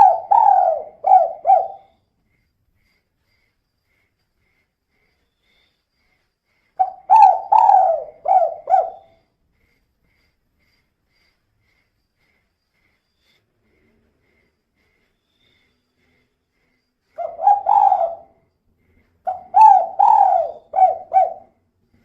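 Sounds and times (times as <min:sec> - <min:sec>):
dove cooing: 0:00.0 - 0:01.9, 0:06.8 - 0:09.2, 0:17.2 - 0:18.4, 0:19.3 - 0:21.6.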